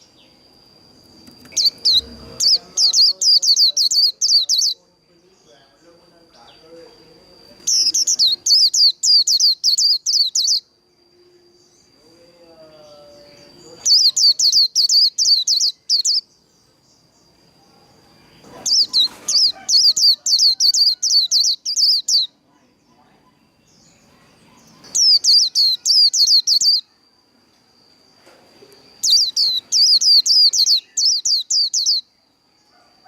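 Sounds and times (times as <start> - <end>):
faint steady high tone: 0.0 - 33.0
bird singing rapid high notes: 1.4 - 4.8, 7.6 - 10.7, 13.3 - 16.3, 24.9 - 26.9, 29.0 - 32.1.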